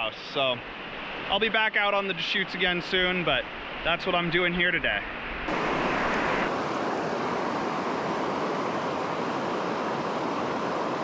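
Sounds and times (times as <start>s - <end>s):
creek rushing over rocks: 5.5s - 11.0s.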